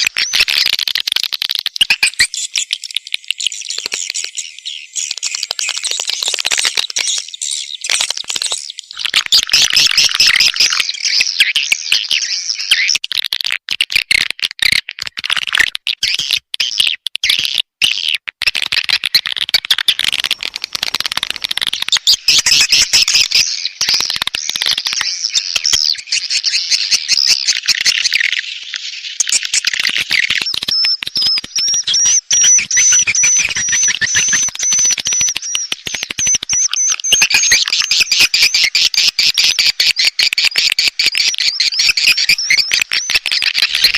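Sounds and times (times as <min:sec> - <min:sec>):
swiftlets twittering: 0:30.4 - 0:37.9.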